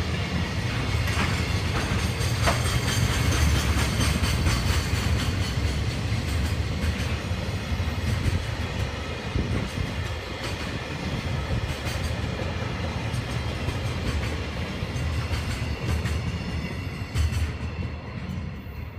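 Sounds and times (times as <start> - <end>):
train rumbling past: 0.0 - 18.9
wheels clicking over rail joints: 0.7 - 10.8.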